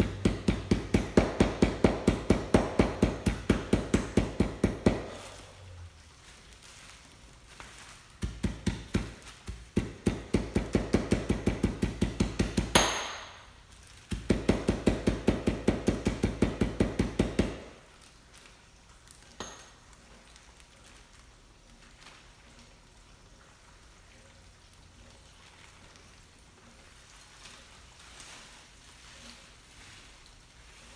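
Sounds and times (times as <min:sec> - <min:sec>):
pounding blows on a work surface: 0:00.0 - 0:05.3, 0:08.2 - 0:13.4, 0:14.1 - 0:17.7.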